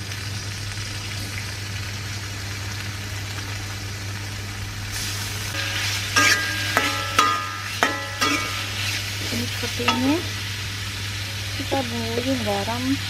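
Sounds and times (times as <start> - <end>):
food sizzling in oil: 0.0 - 13.0
steady low hum: 1.8 - 13.0
metal spatula scraping a wok: 5.6 - 10.3.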